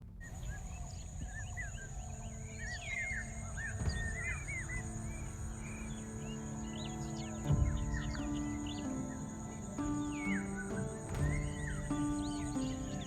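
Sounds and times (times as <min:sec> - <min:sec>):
pulsing insect drone: 0:00.2 - 0:13.0
small birds chirping: 0:00.2 - 0:13.0.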